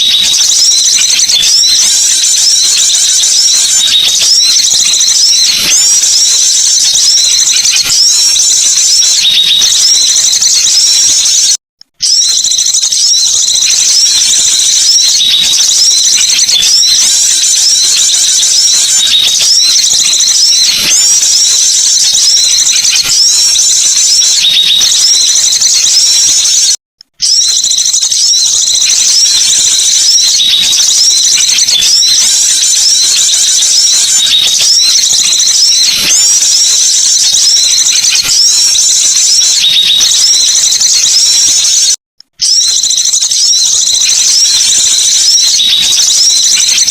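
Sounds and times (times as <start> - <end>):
songbirds chirping and twittering: 0.0 - 46.9.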